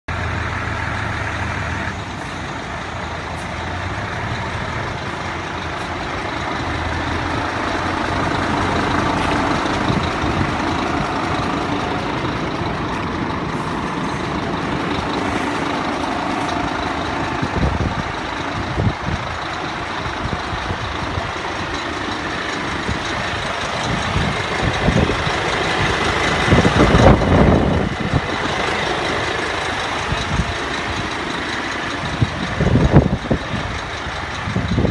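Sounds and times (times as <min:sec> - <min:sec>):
diesel truck engine idling: 0:00.1 - 0:34.9.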